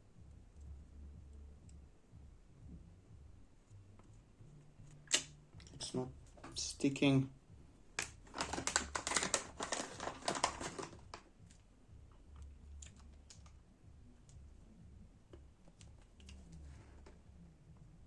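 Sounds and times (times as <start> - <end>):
small clicks and rustling: 8.0 - 11.3.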